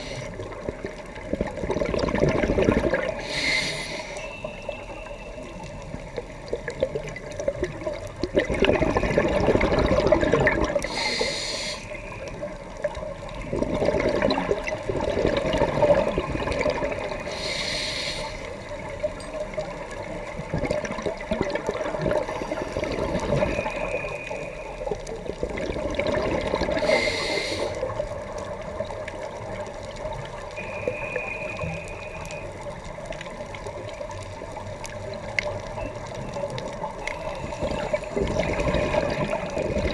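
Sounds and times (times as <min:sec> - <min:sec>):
scuba regulator hissing inhales: 0:00.0 - 0:00.4, 0:03.2 - 0:04.8, 0:10.8 - 0:12.2, 0:17.2 - 0:18.6, 0:26.7 - 0:27.9
exhaust bubbles bubbling: 0:00.0 - 0:03.2, 0:06.4 - 0:11.0, 0:12.2 - 0:17.3, 0:20.0 - 0:24.2, 0:24.9 - 0:27.0, 0:31.9 - 0:39.9.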